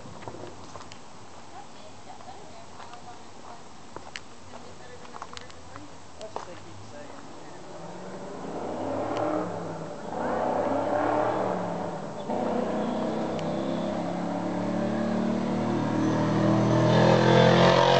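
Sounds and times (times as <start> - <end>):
car engine running and revving: 7.6 - 17.9.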